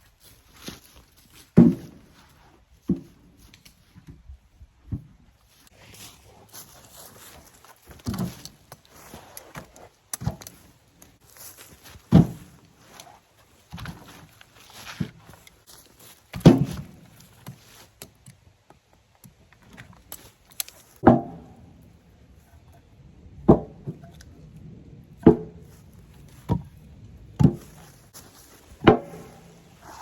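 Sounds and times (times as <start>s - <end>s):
firewood thunking onto a load: 1.4s - 2.2s, 7.8s - 8.8s, 9.5s - 12.6s, 16.0s - 17.6s, 21.0s - 21.6s, 23.4s - 24.2s, 25.2s - 26.8s, 27.4s - 29.8s.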